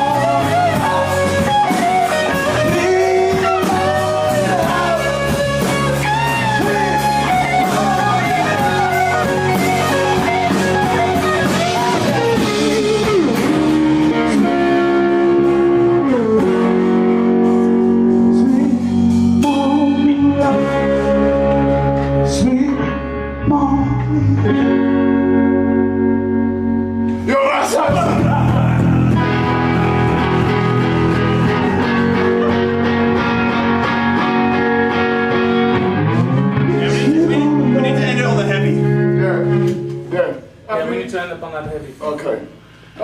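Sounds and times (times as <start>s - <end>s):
person singing: 0.0s - 25.1s, 27.4s - 33.6s, 36.4s - 39.0s
ringing guitar chords: 0.0s - 40.2s
blues-rock band playing: 0.0s - 40.9s.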